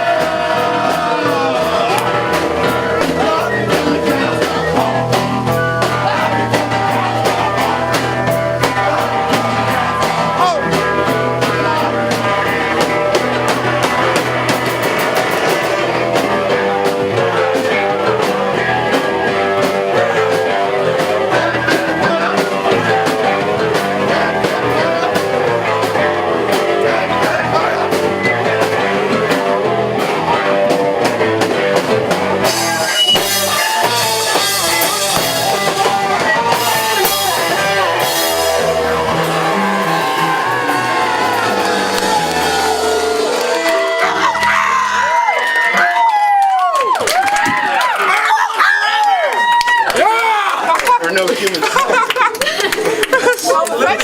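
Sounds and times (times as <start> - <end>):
drum kit: 0.0 - 47.9
electric guitar: 0.0 - 50.0.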